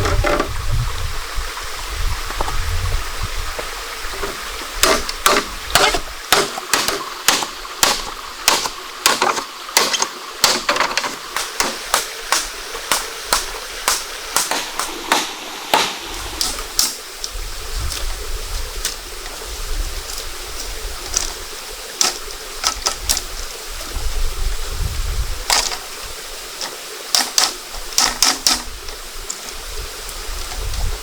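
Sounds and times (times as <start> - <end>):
stream water running: 0.0 - 31.0
sharp knocking strikes: 4.8 - 17.0.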